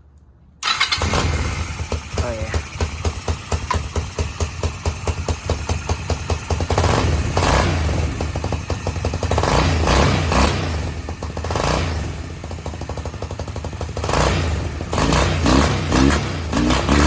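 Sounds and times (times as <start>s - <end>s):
go-kart engine idling roughly: 0.6s - 17.0s.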